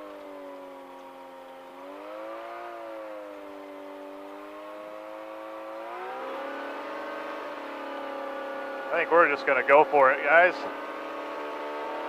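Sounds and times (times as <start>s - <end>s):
ultralight engine and propeller drone: 0.0s - 12.0s.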